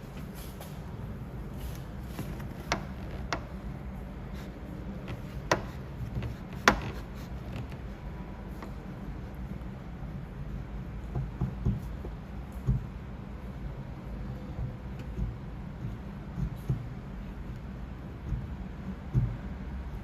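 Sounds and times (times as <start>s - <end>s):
steady low hum: 0.0s - 20.0s
dent repair tool tapping: 5.1s - 7.0s.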